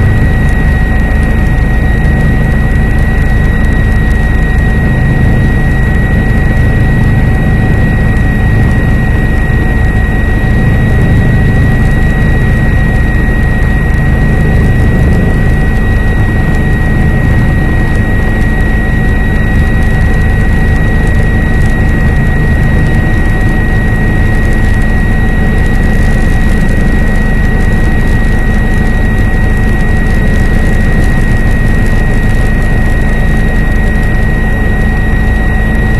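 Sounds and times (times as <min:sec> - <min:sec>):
helicopter drone: 0:00.0 - 0:35.9
high whine: 0:00.0 - 0:35.9.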